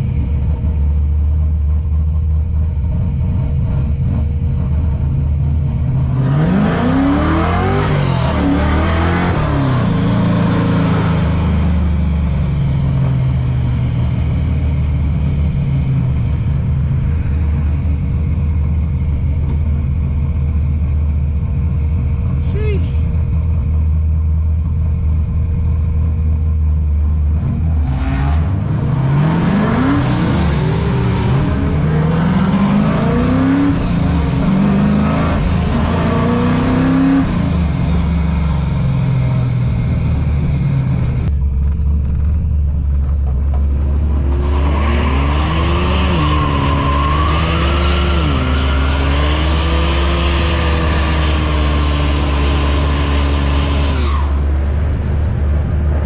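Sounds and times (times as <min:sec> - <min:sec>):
car interior low drone: 0:00.0 - 0:56.0
engine accelerating: 0:00.0 - 0:56.0
engines revving up and down: 0:03.2 - 0:18.4, 0:26.9 - 0:42.3, 0:43.0 - 0:56.0.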